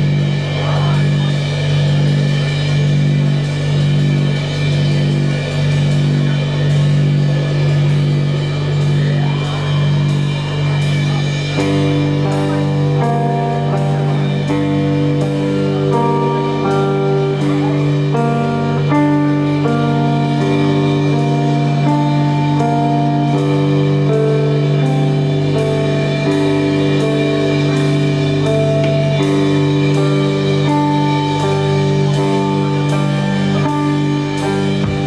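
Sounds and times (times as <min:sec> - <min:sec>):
live rock band playing: 0:00.0 - 0:35.0
repeating stepwise melody: 0:05.5 - 0:35.0.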